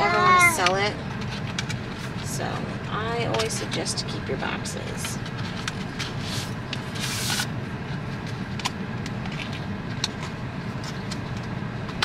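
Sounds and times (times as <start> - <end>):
low car rumble: 0.0 - 12.0
cardboard box sliding rustles: 6.1 - 7.5.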